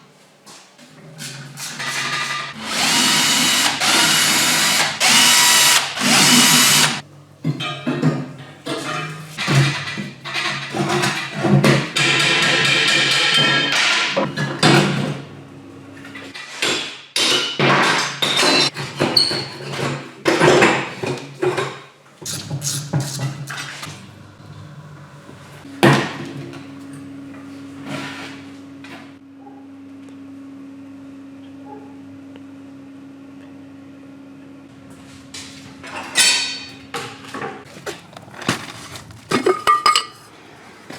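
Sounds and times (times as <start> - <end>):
metal parts knocking and clattering: 37.7 - 40.3.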